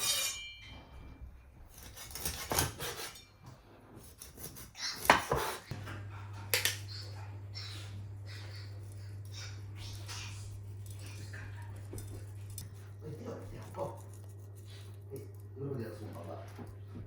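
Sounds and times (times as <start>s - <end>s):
low hum: 5.7s - 17.0s.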